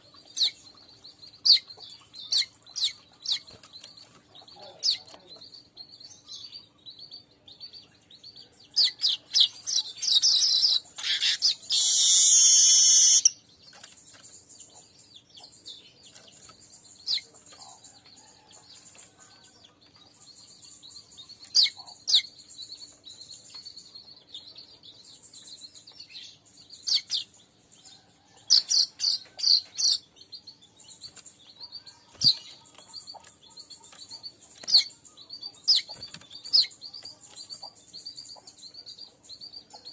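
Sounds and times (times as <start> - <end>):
weaver birds chirping: 0.0 - 39.9
bird chattering and buzzing wheeze: 10.1 - 13.4.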